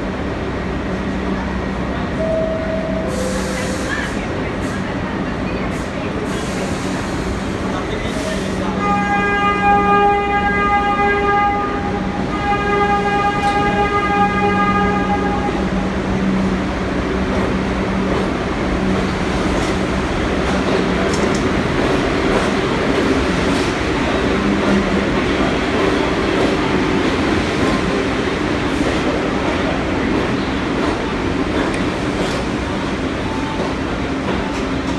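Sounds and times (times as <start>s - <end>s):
train rumble and clatter: 0.0s - 34.9s
train horn blasts: 8.7s - 15.9s.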